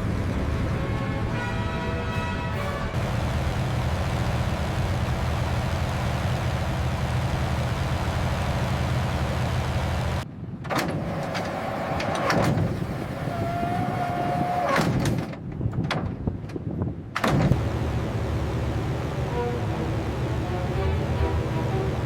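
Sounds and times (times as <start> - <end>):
propeller aircraft engines droning: 0.0 - 10.4, 11.0 - 14.7, 17.4 - 22.0.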